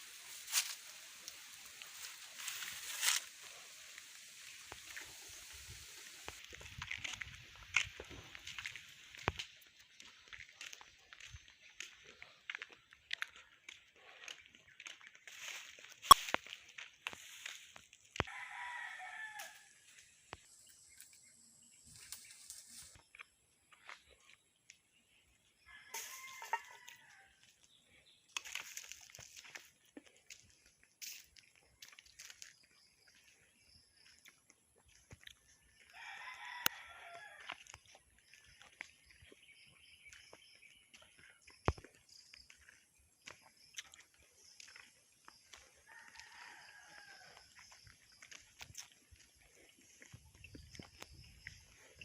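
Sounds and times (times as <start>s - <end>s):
rooster crowing: 18.2s - 19.8s, 25.8s - 27.3s, 35.9s - 37.6s, 45.8s - 47.6s.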